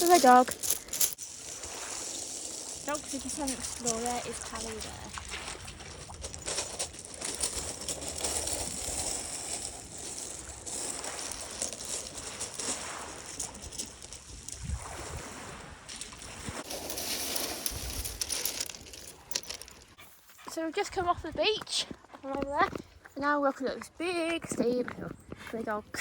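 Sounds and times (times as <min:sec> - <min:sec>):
wind gusting on microphone: 0:07.5 - 0:18.4.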